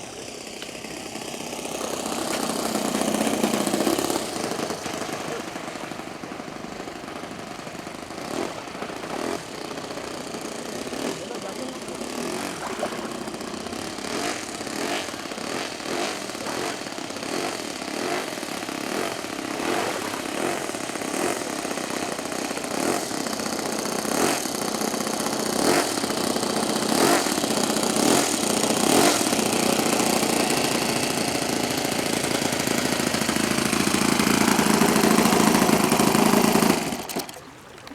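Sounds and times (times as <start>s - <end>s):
model plane engine running: 0.0s - 37.3s.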